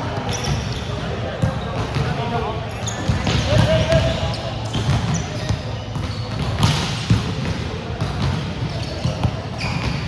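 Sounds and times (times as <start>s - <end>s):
low rumble of play in a hall: 0.0s - 10.0s
volleyball struck and bouncing: 4.8s - 10.0s.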